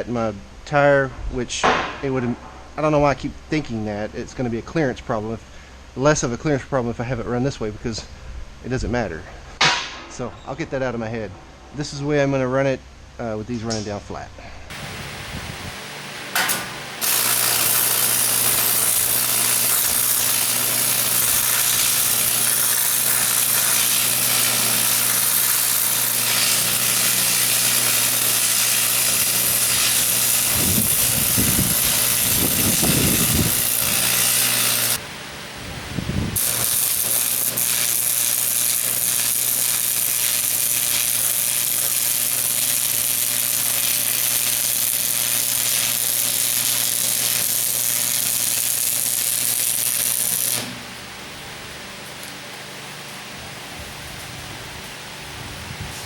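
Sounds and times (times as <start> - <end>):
welding arc crackling hiss: 14.7 - 35.1, 36.4 - 51.1
welder humming: 14.7 - 54.4.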